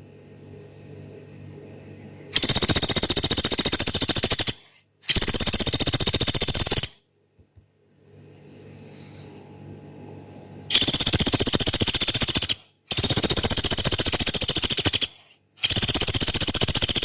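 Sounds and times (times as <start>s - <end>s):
faint low hum: 0.0s - 15.9s
woodpecker rattling calls: 2.4s - 7.0s, 10.7s - 17.0s.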